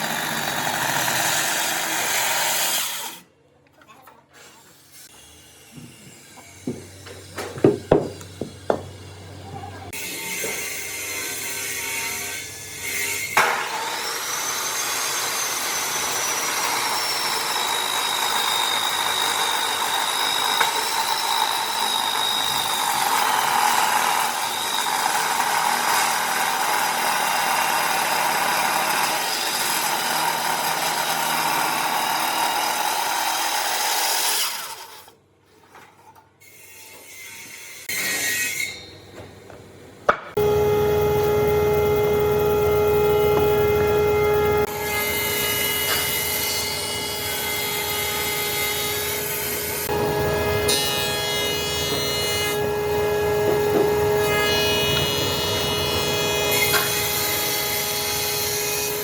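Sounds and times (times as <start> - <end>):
power tool cutting wood: 0.0 - 3.2, 9.9 - 35.2, 40.4 - 59.0
knocks on wood: 6.7 - 8.9.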